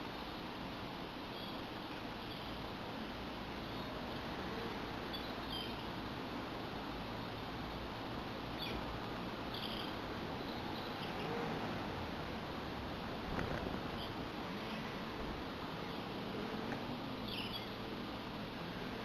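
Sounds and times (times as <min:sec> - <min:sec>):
outdoor background hiss: 0:00.0 - 0:19.0
small birds chirping: 0:01.2 - 0:02.7, 0:05.0 - 0:06.6, 0:08.0 - 0:11.4, 0:13.4 - 0:15.0, 0:16.8 - 0:18.0.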